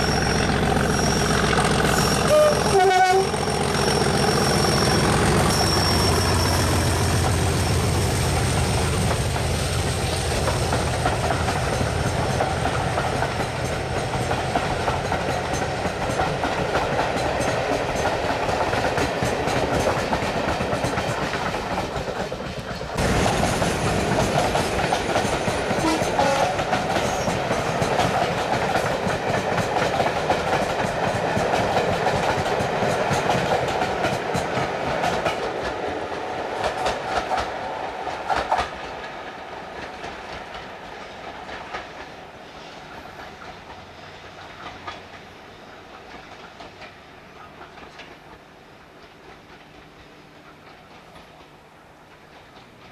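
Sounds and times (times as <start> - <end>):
diesel locomotive engine: 0.0 - 52.9.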